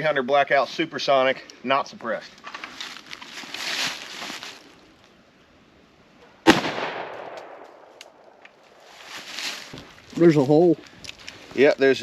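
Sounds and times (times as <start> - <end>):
rifle shot with echo: 6.4 - 8.3.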